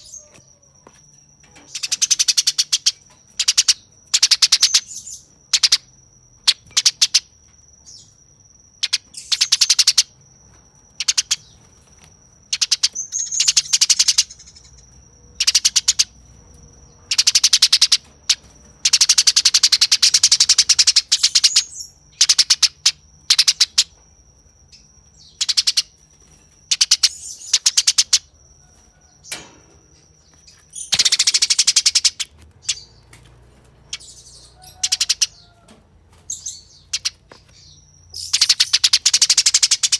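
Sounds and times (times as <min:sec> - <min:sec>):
sparrow harsh chattering calls: 0:01.7 - 0:07.3, 0:08.8 - 0:10.2, 0:11.0 - 0:11.6, 0:12.5 - 0:16.2, 0:17.0 - 0:24.0, 0:25.2 - 0:26.0, 0:26.7 - 0:28.3, 0:30.2 - 0:33.0, 0:33.8 - 0:35.5, 0:36.3 - 0:39.9.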